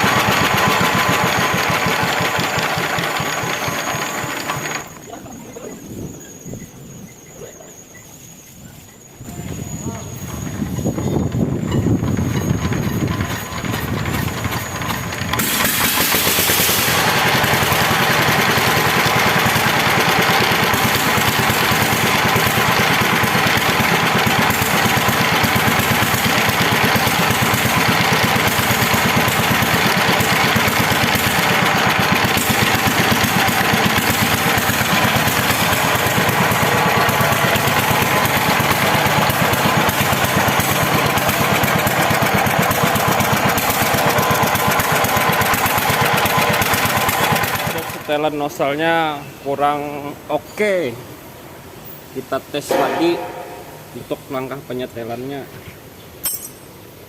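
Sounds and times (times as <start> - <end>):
diesel engine knocking: 0.0 - 5.0, 10.6 - 48.1.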